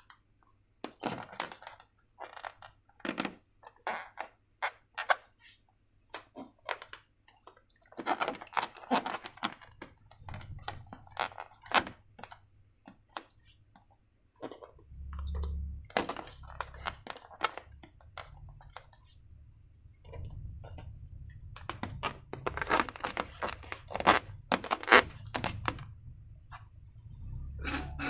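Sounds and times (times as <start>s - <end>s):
sticky crackles and clicks: 14.4s - 26.7s.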